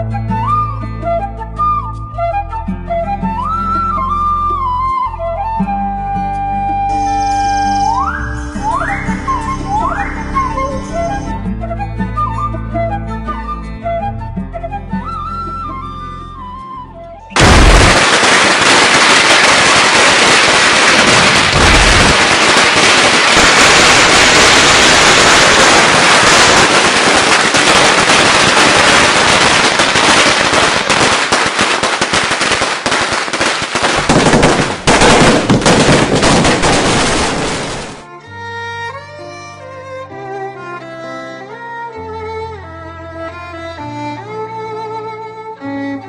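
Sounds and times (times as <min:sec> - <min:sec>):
heavy firecracker bangs: 0:17.4 - 0:38.0
firecrackers crackling: 0:17.4 - 0:38.1.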